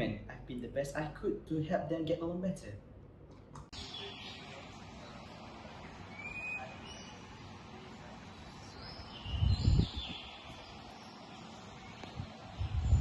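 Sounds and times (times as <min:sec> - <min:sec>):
birds chirping: 0:03.7 - 0:13.0
whistled bird notes: 0:06.0 - 0:07.4.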